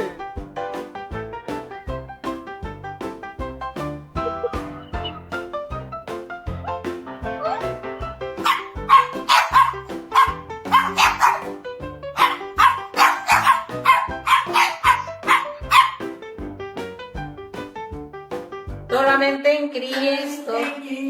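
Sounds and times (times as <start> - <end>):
background music: 0.0 - 19.4
dog barking: 8.4 - 16.0.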